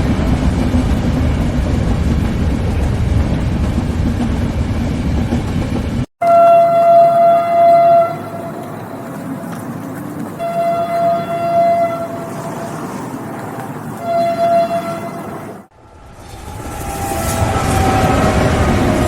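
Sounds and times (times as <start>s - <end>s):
moving train rumble: 0.0s - 19.0s
train horn blasts: 6.2s - 8.8s, 10.4s - 12.8s, 14.0s - 15.3s.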